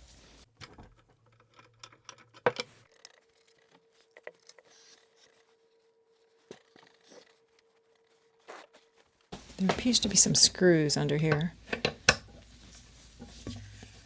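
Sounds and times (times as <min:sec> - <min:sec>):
metal hardware clicking: 0:00.6 - 0:04.6
chair parts clicking and scraping: 0:00.6 - 0:09.3.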